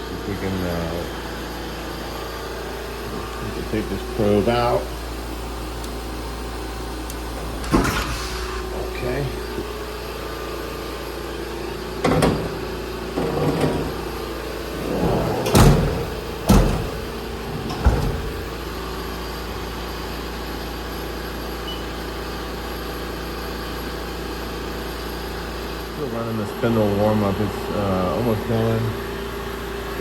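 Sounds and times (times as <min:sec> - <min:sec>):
machine humming: 0:06.8 - 0:19.7
machine knocks and clunks: 0:07.3 - 0:08.4, 0:11.8 - 0:18.8.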